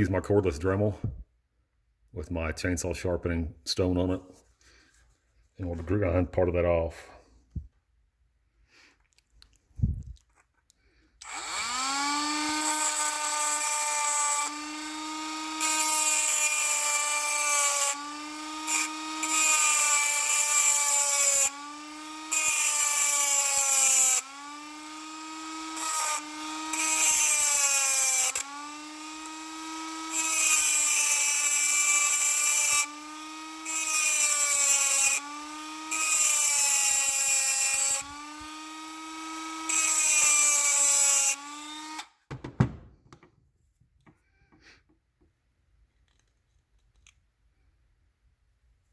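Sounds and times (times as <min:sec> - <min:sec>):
rotary tool motor whine: 0:11.2 - 0:42.1.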